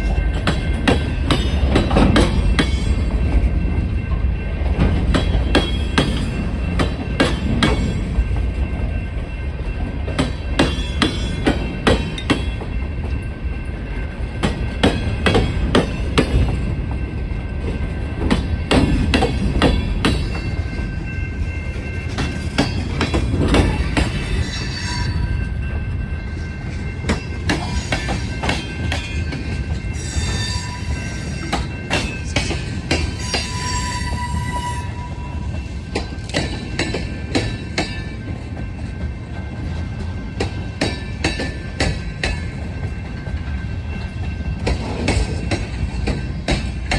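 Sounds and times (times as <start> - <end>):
freight train rumbling: 0.0 - 46.9
high-pitched wheel squeal: 29.9 - 31.6, 33.2 - 35.5.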